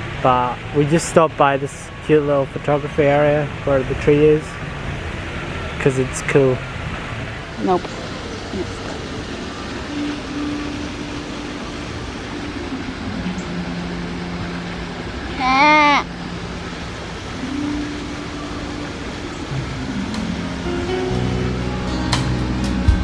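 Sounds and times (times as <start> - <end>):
low held tones: 6.6 - 23.0
high-pitched voice calling: 15.3 - 16.2.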